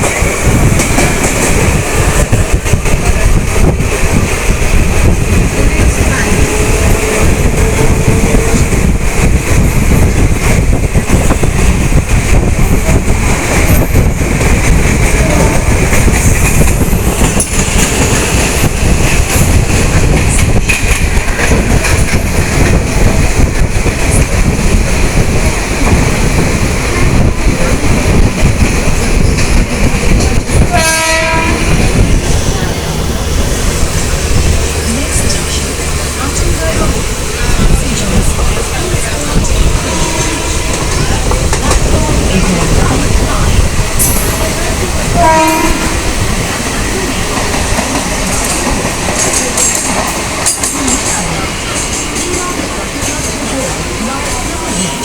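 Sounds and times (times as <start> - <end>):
electric train rumbling and rattling: 0.0 - 55.0
wheels clacking over rails: 0.0 - 55.0
train horn blast: 6.2 - 8.7, 30.6 - 32.0, 39.8 - 41.0, 45.0 - 46.2.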